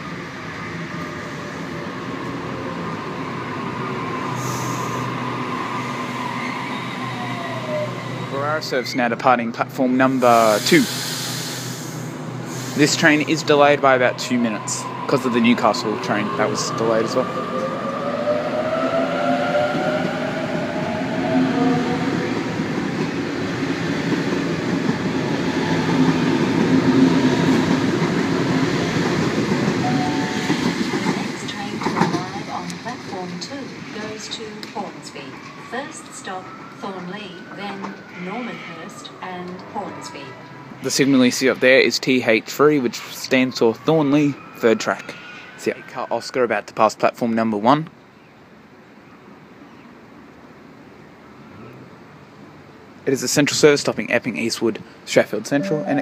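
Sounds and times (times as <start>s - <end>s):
air hiss: 4.4s - 5.1s, 10.1s - 13.3s
electric train whine and rumble: 10.0s - 38.0s.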